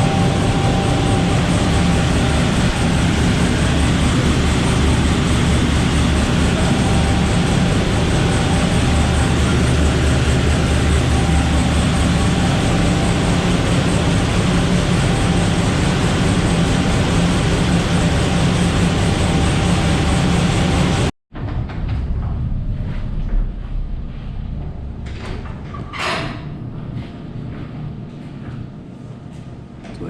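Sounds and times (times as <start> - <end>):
drag car engine running loud: 0.0 - 21.1.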